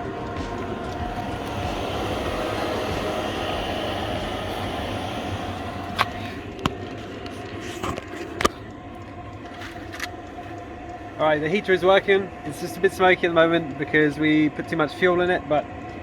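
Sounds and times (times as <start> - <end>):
heater fan and burner humming: 0.0 - 16.0.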